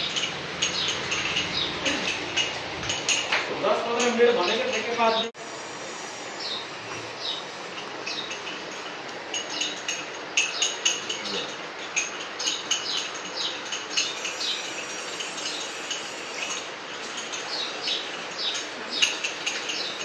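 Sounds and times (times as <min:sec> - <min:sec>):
small birds chirping: 0:00.0 - 0:03.2, 0:12.4 - 0:20.0
steady background hiss: 0:00.0 - 0:20.0.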